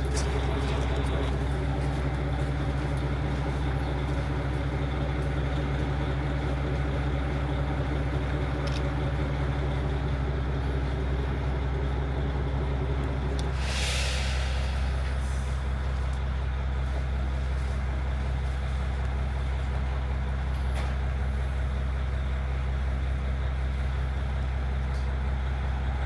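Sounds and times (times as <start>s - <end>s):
diesel engine idling: 0.0s - 26.0s
compressed air hiss: 13.5s - 15.6s.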